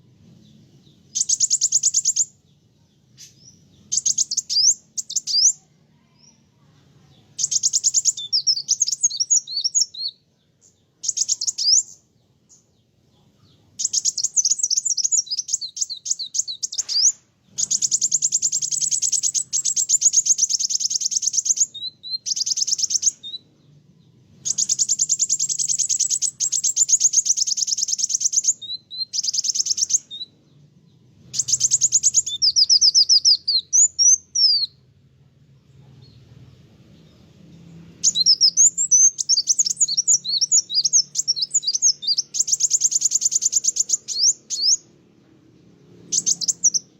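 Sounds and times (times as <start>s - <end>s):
sunbird singing high trills: 0.3s - 34.9s, 36.0s - 45.1s, 45.7s - 46.9s.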